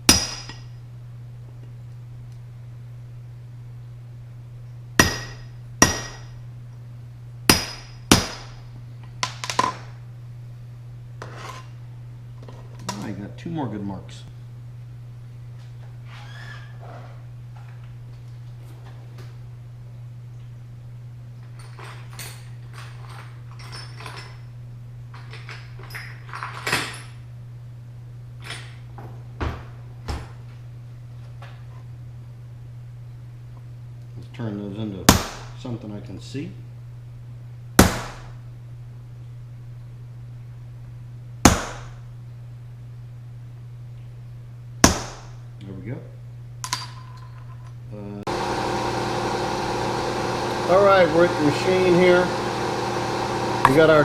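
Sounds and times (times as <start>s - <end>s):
hammer striking metal punch: 0.0s - 0.7s, 5.0s - 6.3s, 7.5s - 8.6s, 35.1s - 35.6s, 37.8s - 38.3s, 41.5s - 42.0s, 44.8s - 45.4s
steady low hum: 0.0s - 54.0s
metal tools clinking on workbench: 21.4s - 24.5s
tools clattering: 21.4s - 24.5s, 25.1s - 27.2s, 46.6s - 47.8s.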